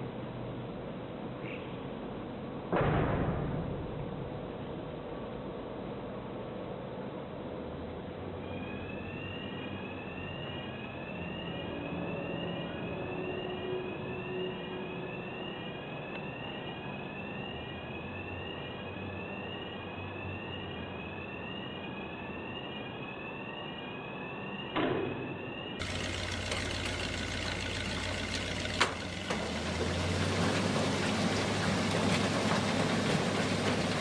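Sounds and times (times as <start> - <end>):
rising electronic warning tone: 8.6 - 29.5
heavy machinery running: 25.8 - 34.0.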